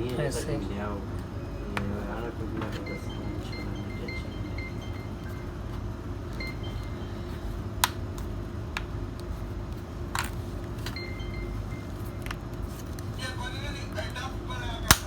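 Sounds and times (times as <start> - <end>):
low hum: 1.0 - 15.0
tablet cover clips snapping: 7.8 - 8.0.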